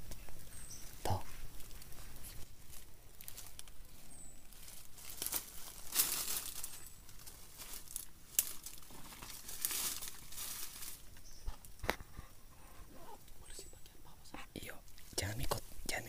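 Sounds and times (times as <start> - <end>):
crinkling and rustling: 1.3 - 12.2.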